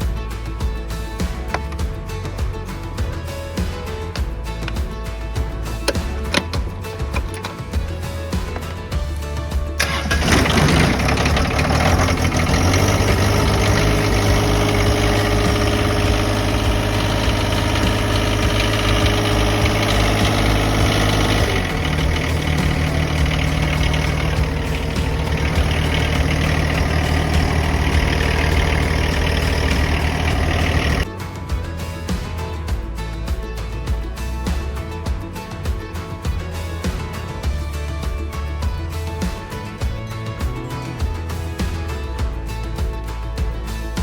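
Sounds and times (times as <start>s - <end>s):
tractor engine idling: 1.2s - 31.1s.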